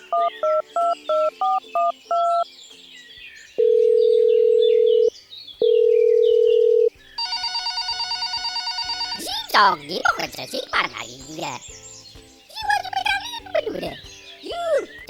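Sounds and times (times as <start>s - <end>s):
phone ringback tone: 3.6s - 9.5s
touch-tone keypad beeps: 5.7s - 9.4s.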